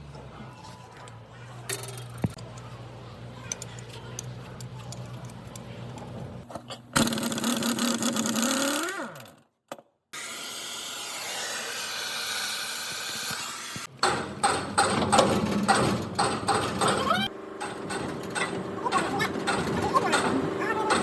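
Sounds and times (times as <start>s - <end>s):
power tool spinning up and down: 7.0s - 9.4s, 10.2s - 13.9s
noisy power tool running: 10.2s - 13.9s, 16.4s - 21.0s.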